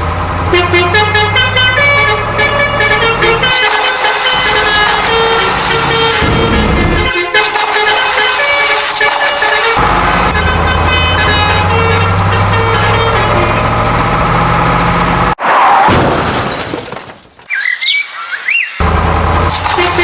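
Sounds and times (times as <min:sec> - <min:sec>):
truck engine running: 0:00.0 - 0:15.4, 0:18.8 - 0:20.0
vehicle horns honking: 0:00.4 - 0:13.9, 0:19.6 - 0:20.0.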